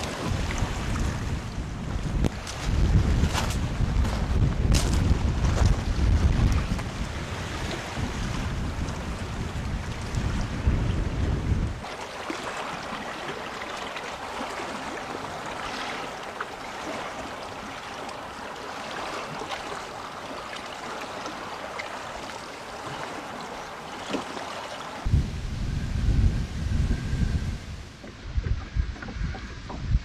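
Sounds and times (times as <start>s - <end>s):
wind buffeting microphone: 0.0s - 11.9s, 24.9s - 30.0s.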